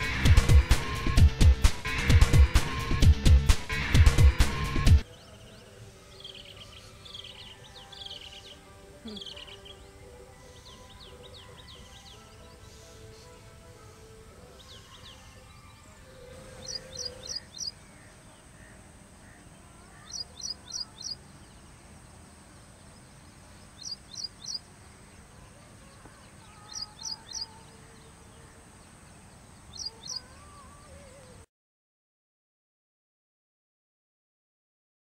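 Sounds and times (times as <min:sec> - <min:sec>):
outdoor background hiss: 0:00.0 - 0:31.5
bird sharp high chirps: 0:16.5 - 0:21.6, 0:23.6 - 0:24.7, 0:25.9 - 0:28.0, 0:29.7 - 0:30.3.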